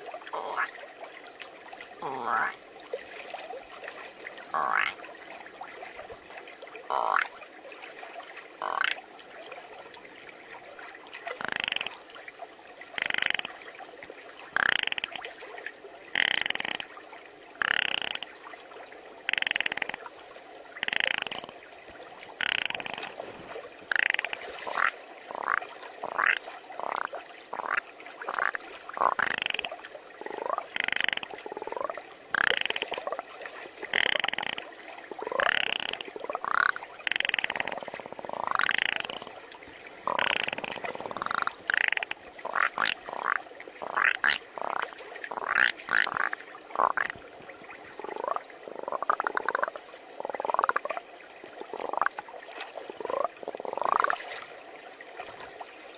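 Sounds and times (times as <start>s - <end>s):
person imitating frog croaks: 0.3s - 0.7s, 2.0s - 2.6s, 4.5s - 5.0s, 6.9s - 7.3s, 8.6s - 9.0s, 11.4s - 12.0s, 13.0s - 13.5s, 14.6s - 15.1s, 16.2s - 16.8s, 17.6s - 18.2s, 19.3s - 20.0s, 20.8s - 21.5s, 22.4s - 23.1s, 23.9s - 27.8s, 28.4s - 33.0s, 33.9s - 34.6s, 35.2s - 39.3s, 40.0s - 47.2s.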